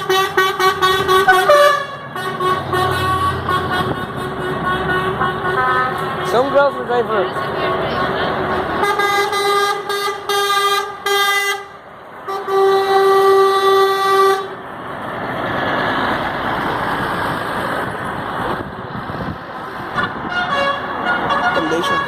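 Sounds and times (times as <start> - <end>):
truck horn blasts: 0.0 - 14.6, 20.0 - 22.0
truck going by: 0.0 - 22.0.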